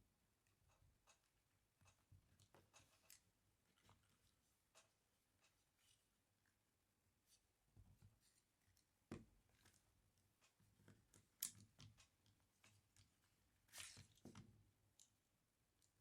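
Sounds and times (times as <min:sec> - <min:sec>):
small parts clicking and tapping: 0:00.4 - 0:06.0, 0:09.6 - 0:16.0.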